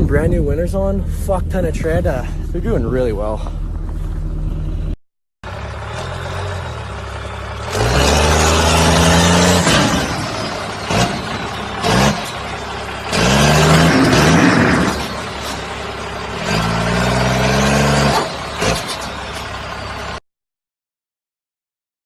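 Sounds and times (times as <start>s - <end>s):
diesel truck engine revving: 3.2s - 20.2s.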